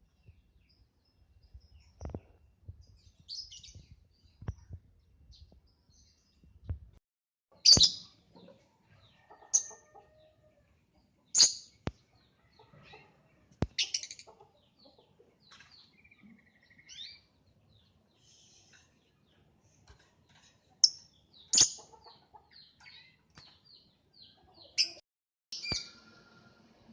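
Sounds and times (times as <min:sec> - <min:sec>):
soft bird chirps and trill: 0:07.5 - 0:25.0, 0:25.6 - 0:26.9.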